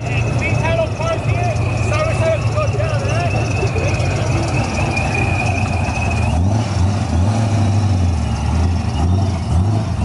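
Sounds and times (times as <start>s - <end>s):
high whine: 0.0s - 7.2s
car engine droning: 0.0s - 10.0s.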